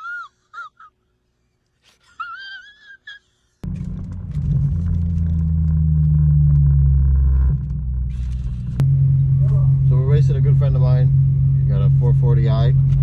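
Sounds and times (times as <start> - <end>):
car engine droning: 3.6 - 13.0.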